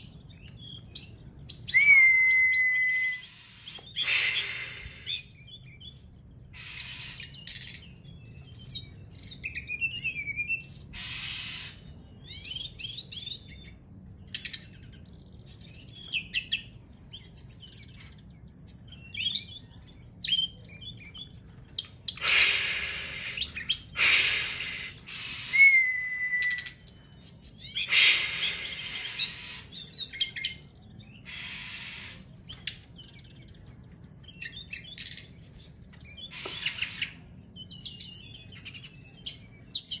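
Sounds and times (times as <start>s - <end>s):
songbird chirps and trills: 0.0s - 40.0s
short steady bird whistle: 1.7s - 5.2s, 22.2s - 26.7s, 27.8s - 29.4s.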